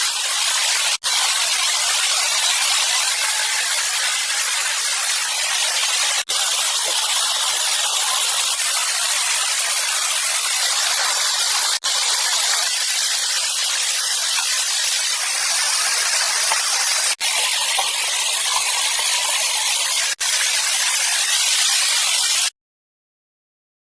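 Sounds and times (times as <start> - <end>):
rushing water hiss: 0.0 - 22.5.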